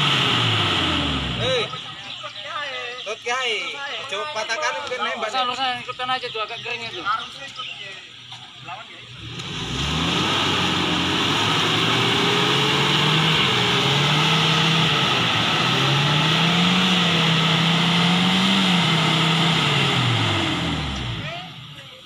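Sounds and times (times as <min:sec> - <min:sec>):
engine revving hard: 0:00.0 - 0:01.9, 0:09.1 - 0:21.7.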